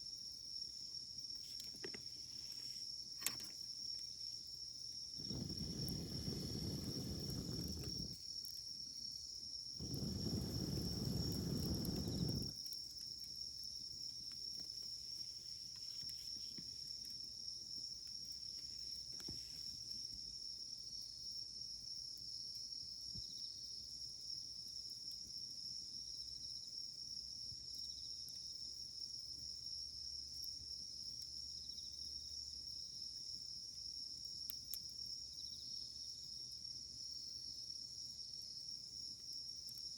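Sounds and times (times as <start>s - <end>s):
insect trill: 0.0s - 39.9s
campfire crackling: 5.1s - 8.7s, 9.7s - 19.1s
low rumbling noise: 5.2s - 8.2s, 9.8s - 12.5s.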